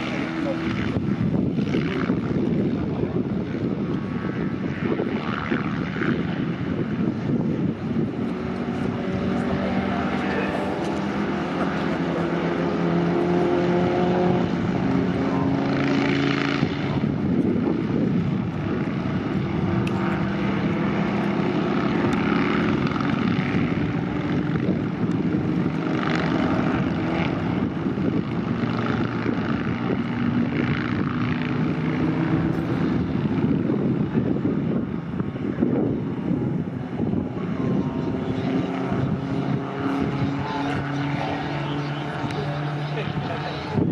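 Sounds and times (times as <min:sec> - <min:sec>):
racing car engines passing: 0:07.7 - 0:17.2, 0:18.2 - 0:29.2, 0:35.9 - 0:43.9.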